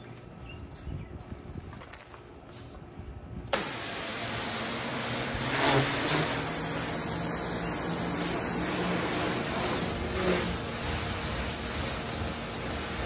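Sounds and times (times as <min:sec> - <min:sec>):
low motor hum: 0:02.9 - 0:13.0
pressure washer spraying: 0:03.6 - 0:13.0.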